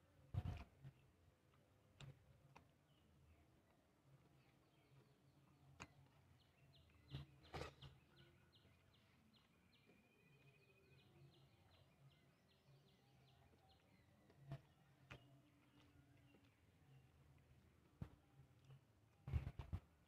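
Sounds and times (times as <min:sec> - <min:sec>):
small bird chirping: 0:04.2 - 0:17.3.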